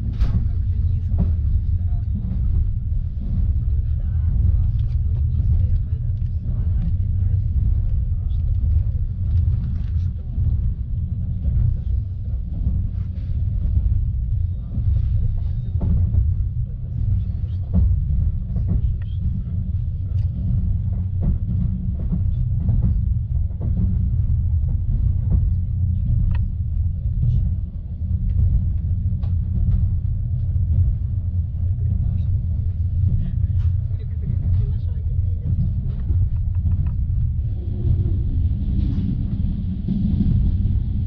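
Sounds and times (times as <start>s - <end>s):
train rumbling: 0.0s - 41.0s.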